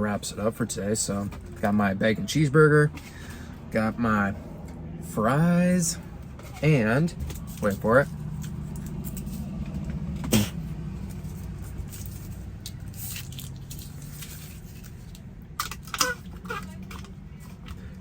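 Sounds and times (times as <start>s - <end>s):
car engine idling: 0.0s - 18.0s
handling noises: 6.0s - 18.0s.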